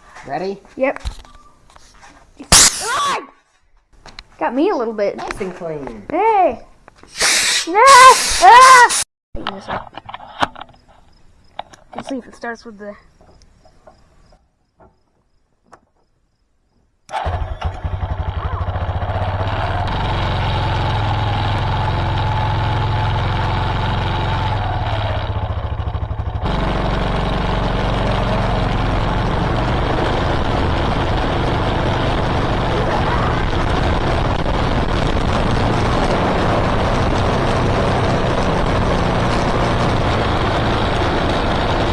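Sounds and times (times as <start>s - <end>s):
lawn tractor engine running: 17.1s - 41.9s.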